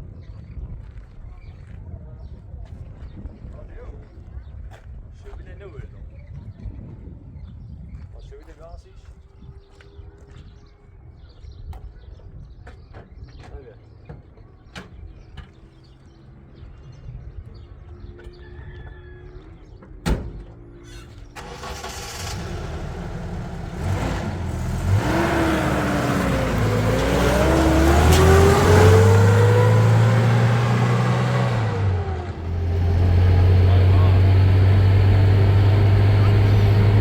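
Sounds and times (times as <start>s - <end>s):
vehicle engine accelerating: 21.4s - 37.0s.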